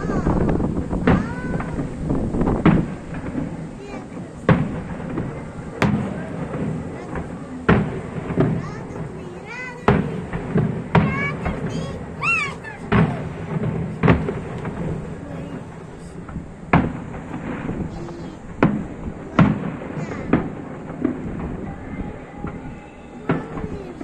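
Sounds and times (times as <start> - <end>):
crowd voices: 0.0 - 24.0
fireworks bursting: 0.0 - 24.0.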